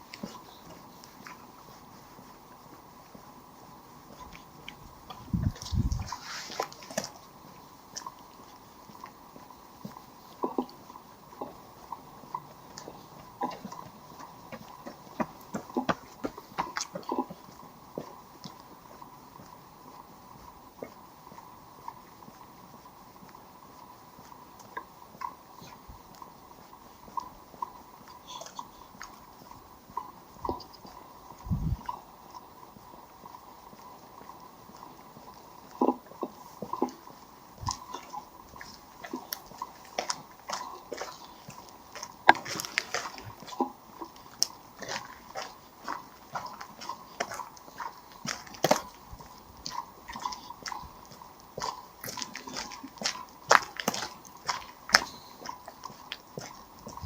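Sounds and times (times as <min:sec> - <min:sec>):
footsteps on hard walkway: 0:00.0 - 0:27.8, 0:28.5 - 0:57.0
footsteps on gravel: 0:34.2 - 0:57.0.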